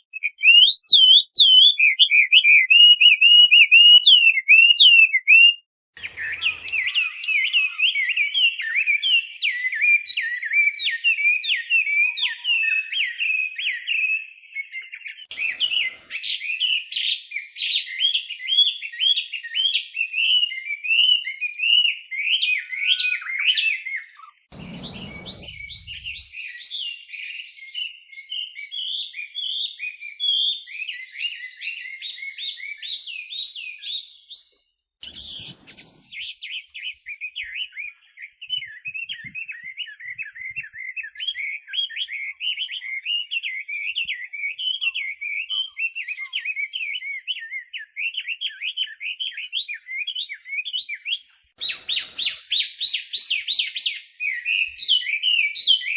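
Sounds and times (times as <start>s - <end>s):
bird singing whistled phrases: 0.0s - 55.9s
short burst of noise: 24.5s - 26.2s.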